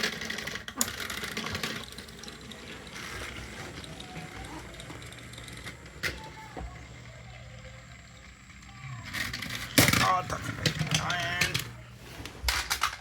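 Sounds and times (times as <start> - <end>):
toy train motors whirring: 0.0 - 13.0.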